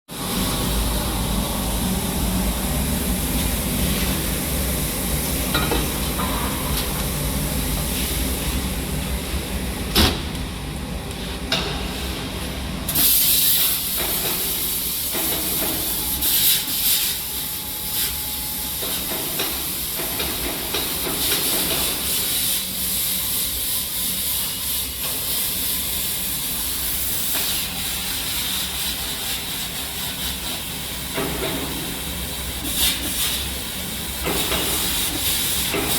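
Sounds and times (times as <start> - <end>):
low machine hum: 0.1 - 13.0
plasma torch hissing: 12.9 - 35.9.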